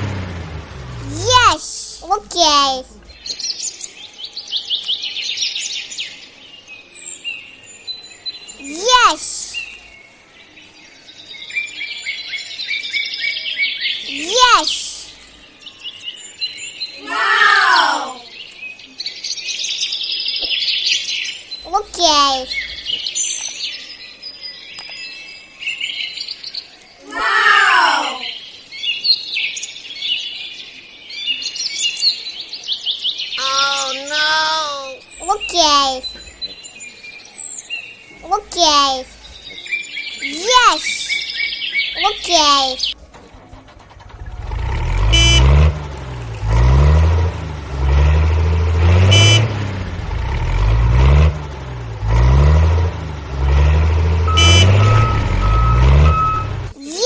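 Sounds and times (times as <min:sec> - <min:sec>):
low vehicle rumble: 0:00.0 - 0:03.3, 0:42.1 - 0:56.8
birds chirping: 0:00.0 - 0:57.0
cartoon horn honks: 0:45.0 - 0:45.8, 0:49.0 - 0:49.7, 0:54.3 - 0:56.7
reversing beeps: 0:54.3 - 0:56.6.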